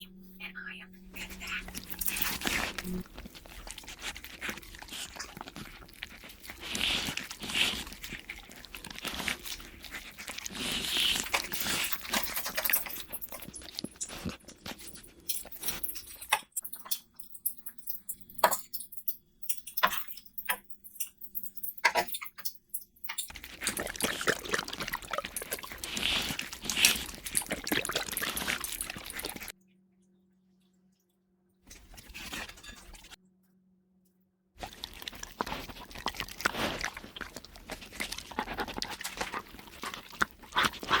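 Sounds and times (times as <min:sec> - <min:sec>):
crunchy chewing and biting: 0:01.1 - 0:16.2, 0:23.3 - 0:29.5, 0:34.6 - 0:41.0.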